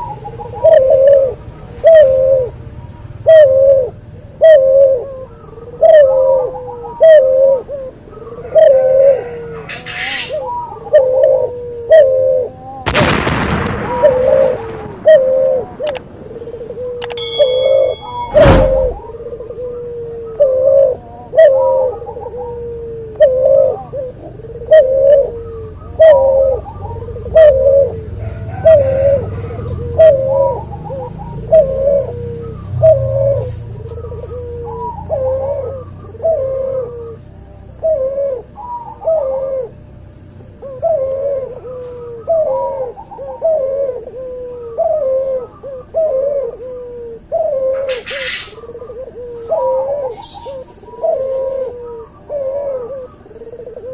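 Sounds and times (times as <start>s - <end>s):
dove cooing: 0.0s - 53.9s
rustle: 11.0s - 24.5s, 33.0s - 37.1s, 40.5s - 53.9s.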